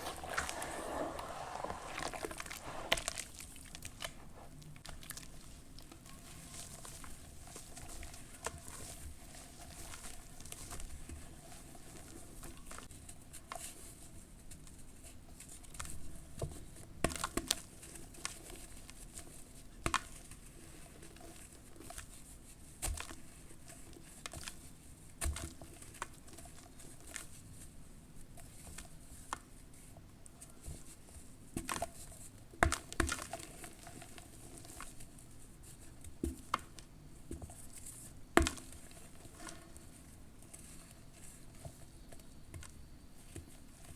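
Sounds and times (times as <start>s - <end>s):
charcoal ash crumbling and crackling: 0.0s - 7.2s.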